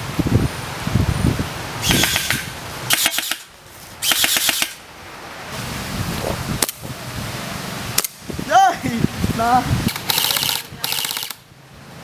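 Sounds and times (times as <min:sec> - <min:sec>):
airsoft guns firing: 0:01.8 - 0:03.4, 0:04.0 - 0:04.8, 0:09.9 - 0:11.4.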